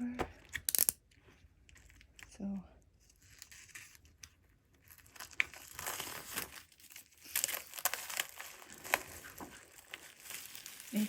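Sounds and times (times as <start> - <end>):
plastic wrapping crinkling: 3.1 - 11.0.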